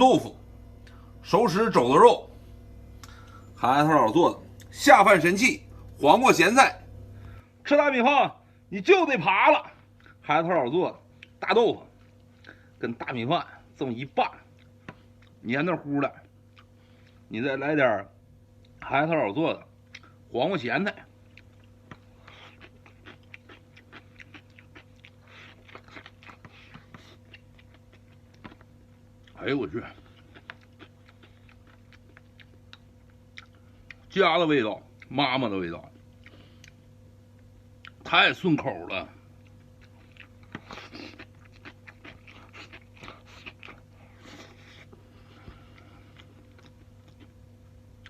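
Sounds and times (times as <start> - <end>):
faint steady hum: 0.0 - 48.0
person chewing food: 9.8 - 10.2, 11.0 - 12.8, 14.3 - 17.3, 19.8 - 20.3, 21.0 - 34.1, 35.8 - 38.0, 38.6 - 48.0.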